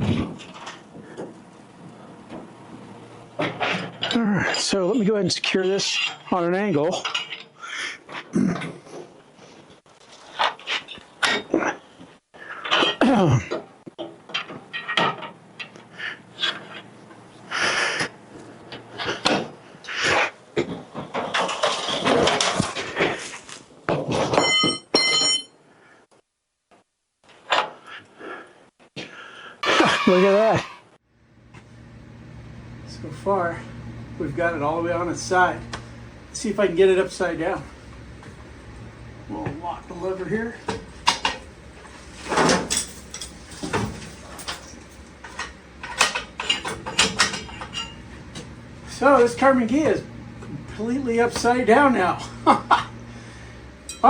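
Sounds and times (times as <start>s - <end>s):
metal grinding and scraping: 41.0s - 49.2s
metal rotisserie clanking: 42.2s - 48.5s.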